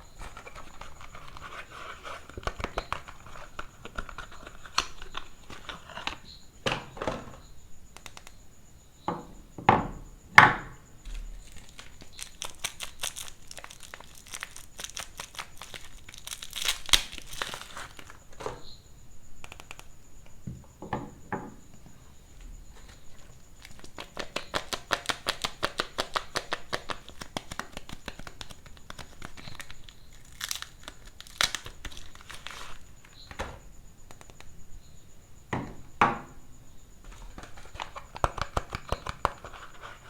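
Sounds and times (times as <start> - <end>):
packaging crinkling and tearing: 11.1 - 18.3, 23.6 - 33.2.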